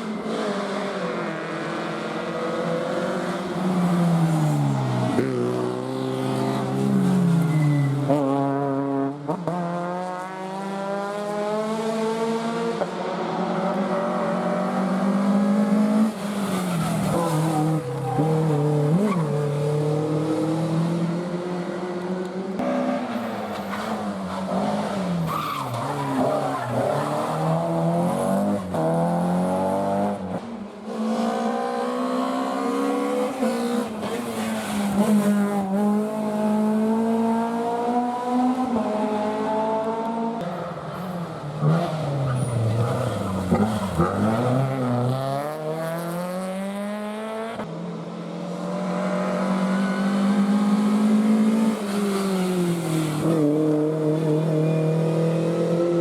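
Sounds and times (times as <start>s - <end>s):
tyres skidding: 22.8s - 28.9s
rally car engine revving: 41.6s - 47.7s.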